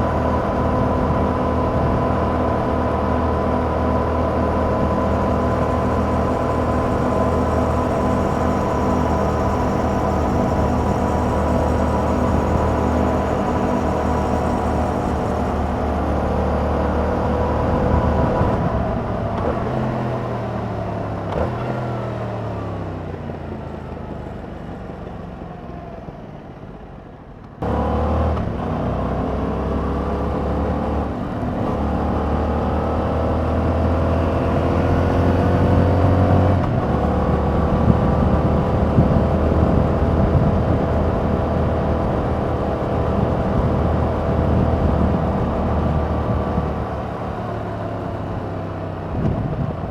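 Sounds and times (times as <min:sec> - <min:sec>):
motorcycle engine revving: 0:00.1 - 0:22.3.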